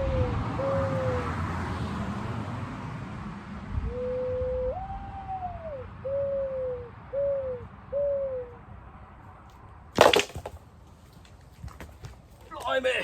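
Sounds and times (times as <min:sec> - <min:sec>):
dove cooing: 0:00.0 - 0:01.4, 0:03.9 - 0:08.7.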